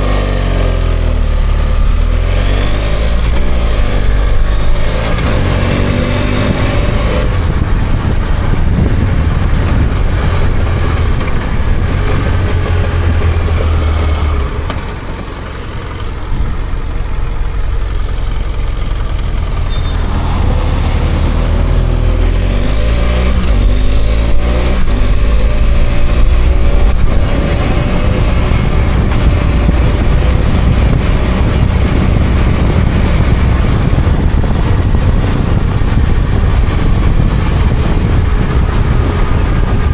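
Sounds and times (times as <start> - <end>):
motorcycle engine revving: 0.0 - 39.9
road and wind noise: 0.0 - 39.9.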